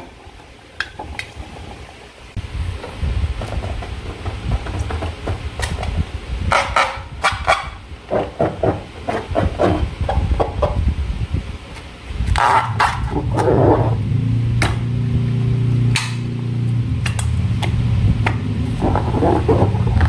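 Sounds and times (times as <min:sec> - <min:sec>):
low rumble: 0:02.3 - 0:20.0.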